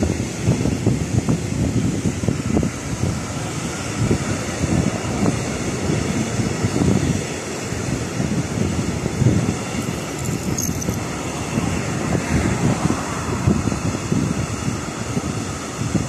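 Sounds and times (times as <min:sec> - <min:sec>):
wind noise on microphone: 0:00.0 - 0:16.0.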